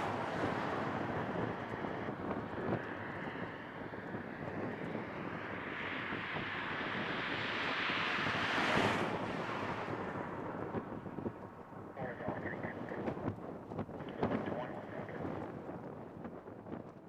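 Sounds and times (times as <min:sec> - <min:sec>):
jet plane passing at takeoff: 0:00.0 - 0:13.4
wind buffeting microphone: 0:00.0 - 0:17.0.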